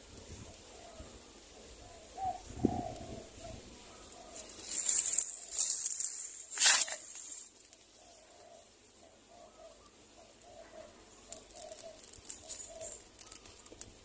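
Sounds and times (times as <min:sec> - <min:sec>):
high hissing rustle: 0:00.0 - 0:08.2, 0:11.0 - 0:14.0
doves cooing: 0:00.0 - 0:14.0.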